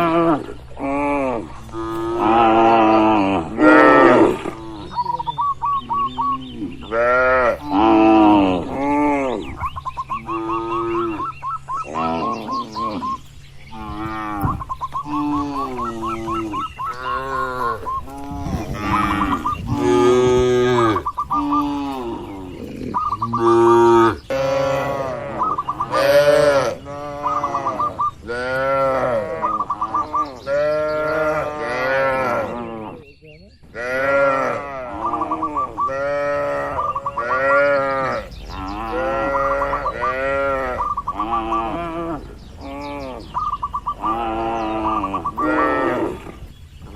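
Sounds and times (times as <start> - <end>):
cattle mooing: 0.0 - 5.2, 5.9 - 9.5, 10.2 - 33.0, 33.8 - 46.5
high warbling chirp: 4.3 - 31.5, 34.9 - 46.9.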